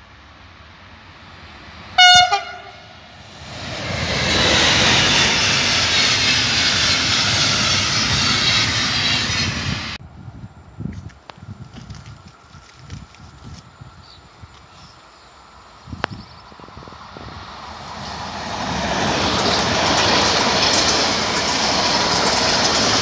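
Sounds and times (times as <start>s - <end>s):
train passing at speed: 0.0s - 10.7s, 15.4s - 23.0s
train horn blast: 2.0s - 3.0s.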